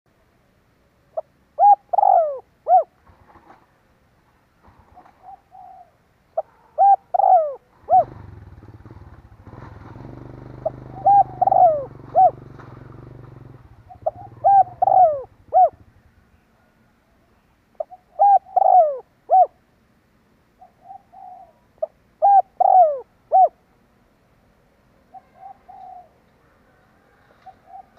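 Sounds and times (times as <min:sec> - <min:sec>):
dove cooing: 0:01.1 - 0:03.6, 0:04.6 - 0:16.7, 0:17.8 - 0:19.7, 0:20.6 - 0:23.6, 0:25.1 - 0:27.9.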